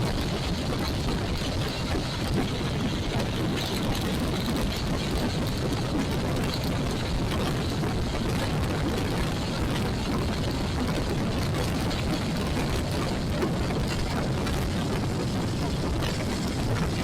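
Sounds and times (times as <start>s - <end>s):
wind and road rush: 0.0s - 17.0s.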